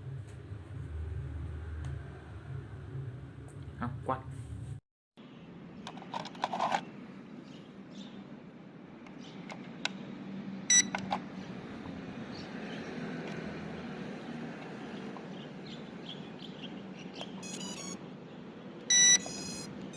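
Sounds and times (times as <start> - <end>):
low hum: 0.0 - 4.8
short electronic beep: 10.7 - 10.9, 17.4 - 18.0, 18.9 - 19.7.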